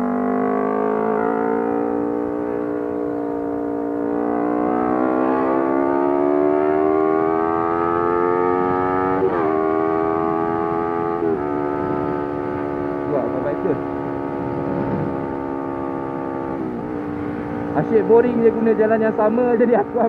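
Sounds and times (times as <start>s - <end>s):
motorcycle engine running: 0.0s - 20.0s
low wind rumble: 10.1s - 20.0s.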